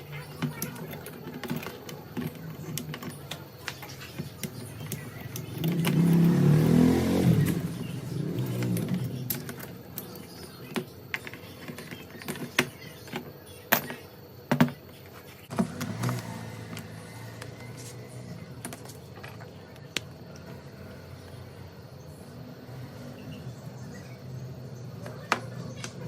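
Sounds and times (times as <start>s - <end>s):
metal parts and tools clinking: 0.0s - 14.8s.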